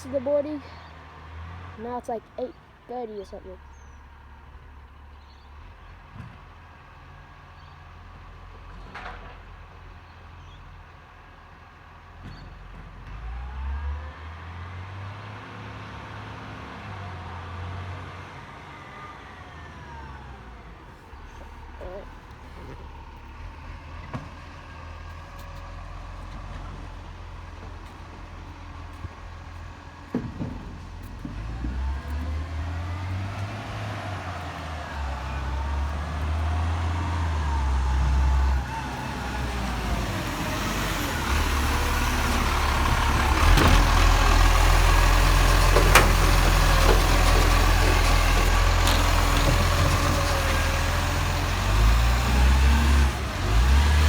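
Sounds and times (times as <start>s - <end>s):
truck engine rumbling: 0.0s - 54.0s
sharp clunks: 45.6s - 50.1s.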